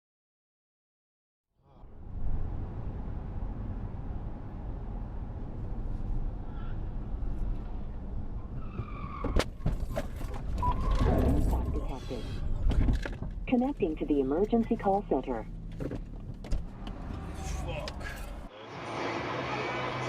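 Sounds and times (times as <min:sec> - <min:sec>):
engine and road rumble: 0:01.6 - 0:20.0.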